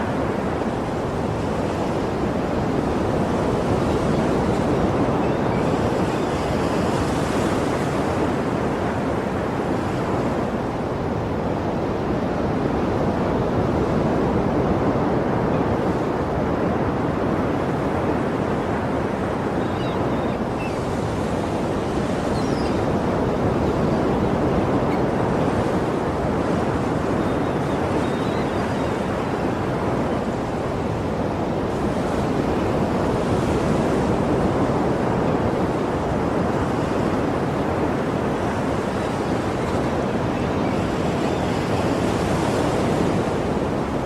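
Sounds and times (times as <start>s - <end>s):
sea waves washing on shore: 0.0s - 44.0s.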